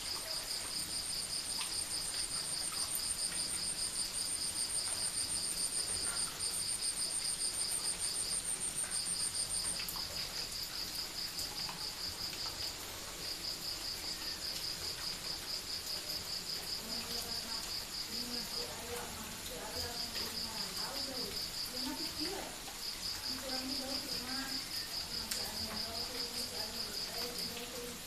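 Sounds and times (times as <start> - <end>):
crickets chirping: 0.0 - 28.0.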